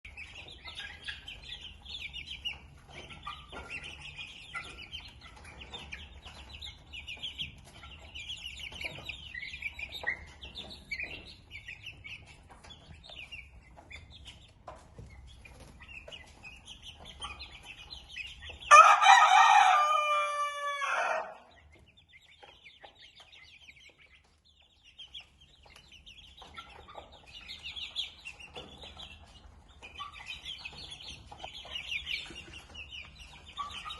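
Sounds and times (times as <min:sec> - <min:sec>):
chickens clucking and cheeping: 0:00.0 - 0:33.9
rooster crowing: 0:18.7 - 0:21.4.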